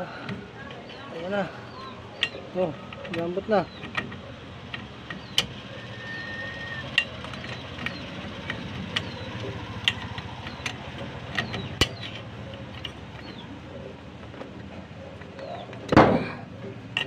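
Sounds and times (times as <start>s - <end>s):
low background hum: 0.0s - 17.0s
hand tools clicking and knocking: 2.2s - 13.6s.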